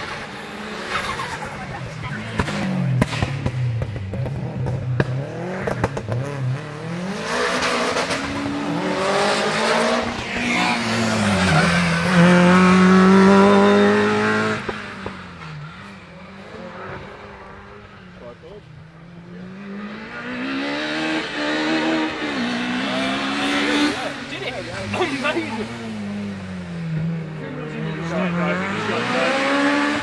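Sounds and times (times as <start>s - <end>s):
distant engine: 0.0s - 30.0s
car engine revving hard: 2.1s - 15.4s, 19.3s - 30.0s.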